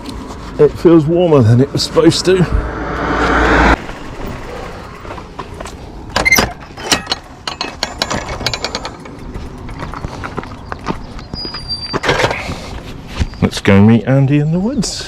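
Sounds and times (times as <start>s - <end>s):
bike clicking and rattling: 3.8s - 13.8s.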